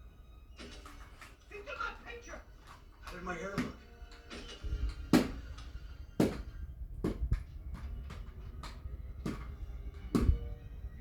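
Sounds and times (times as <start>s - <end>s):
sharp knocks and thumps: 3.0s - 3.9s, 5.1s - 5.5s, 6.2s - 10.4s.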